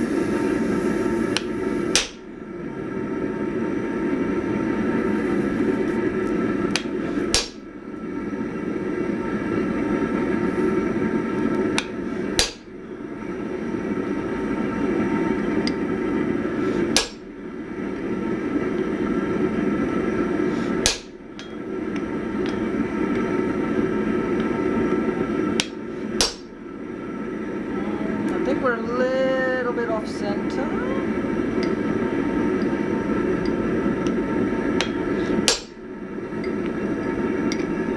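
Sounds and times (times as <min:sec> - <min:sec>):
hammer striking punch on steel: 0:01.4 - 0:02.3, 0:06.8 - 0:07.7, 0:12.4 - 0:12.8, 0:17.0 - 0:17.3, 0:20.8 - 0:21.6, 0:25.6 - 0:26.6, 0:34.8 - 0:35.8.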